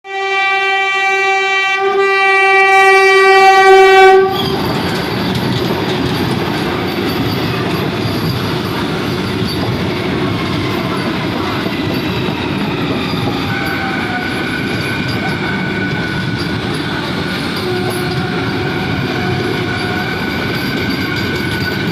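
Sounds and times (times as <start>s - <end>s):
train horn blast: 0.0s - 4.7s, 17.6s - 20.2s
train rumble and wheels on rail: 0.1s - 21.9s.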